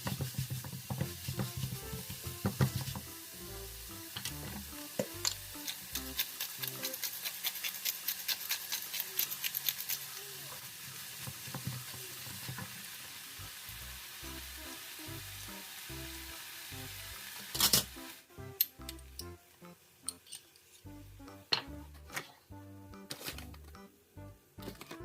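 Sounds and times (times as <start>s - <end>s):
food sizzling in a frying pan: 0.0s - 18.3s.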